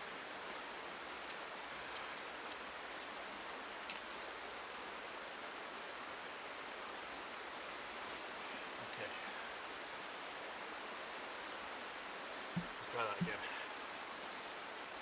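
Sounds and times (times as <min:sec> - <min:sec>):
faint ticks: 0:00.0 - 0:03.2
river water rushing: 0:00.0 - 0:15.0.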